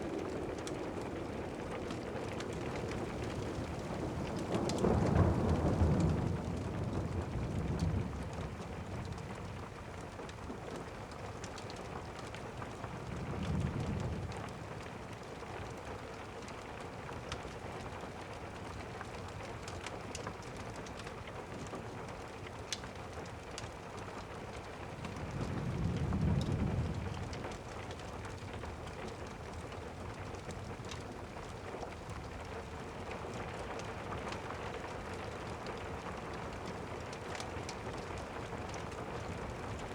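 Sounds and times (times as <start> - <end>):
thunder rumbling low: 0.0 - 9.6, 25.0 - 27.6
faint crackles: 0.0 - 39.9
steady rain: 0.0 - 39.9.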